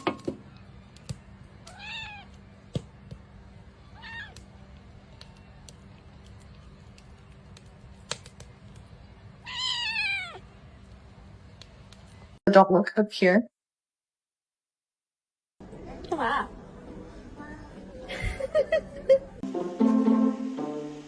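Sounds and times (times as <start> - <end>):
cat meowing: 1.6 - 2.3, 3.8 - 4.4, 9.4 - 10.4.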